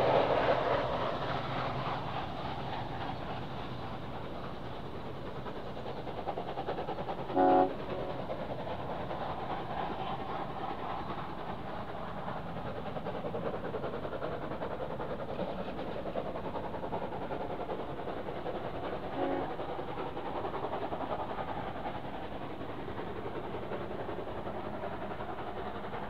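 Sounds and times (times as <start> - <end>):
locomotive whistle toot: 7.3 - 8.1, 19.2 - 19.6.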